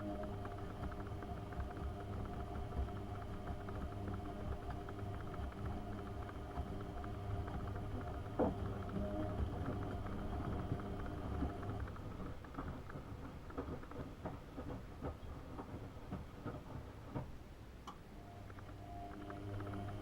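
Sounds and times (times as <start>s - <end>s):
washing machine motor humming: 0.0s - 17.2s, 18.2s - 20.0s
small irregular clicks: 0.0s - 20.0s.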